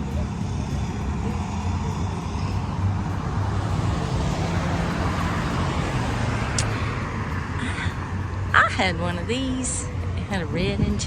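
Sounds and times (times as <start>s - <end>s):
car traffic engine rumble: 0.0s - 11.0s
road noise: 0.0s - 11.0s.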